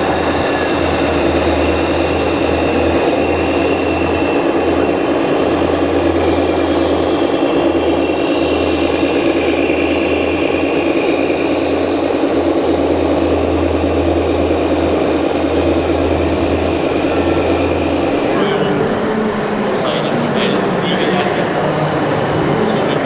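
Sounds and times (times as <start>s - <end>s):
toy machine engine drone: 15.6s - 23.0s.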